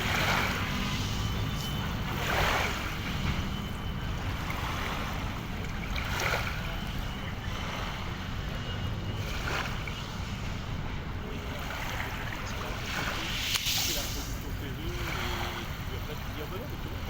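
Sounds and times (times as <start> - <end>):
water waves washing: 0.0 - 17.0
wind rumble on microphone: 0.0 - 17.0.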